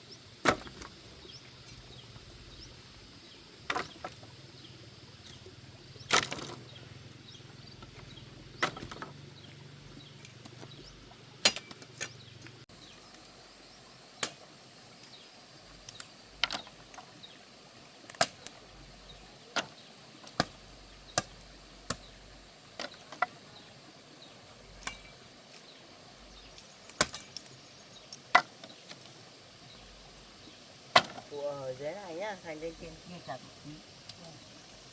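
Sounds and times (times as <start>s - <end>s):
blade chopping wood: 0.4s - 1.0s, 3.7s - 4.2s, 6.1s - 6.6s, 7.8s - 9.2s, 21.2s - 22.1s, 26.9s - 27.5s, 30.9s - 31.3s.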